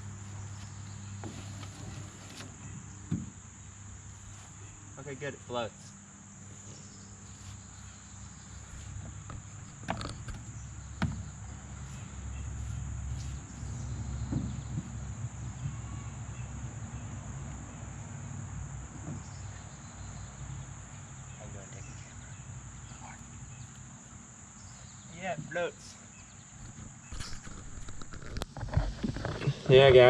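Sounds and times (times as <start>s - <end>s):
crickets chirping: 0.0s - 30.0s
low rumble of wind or handling: 5.9s - 17.3s, 26.1s - 30.0s
sharp knocks: 9.0s - 11.3s.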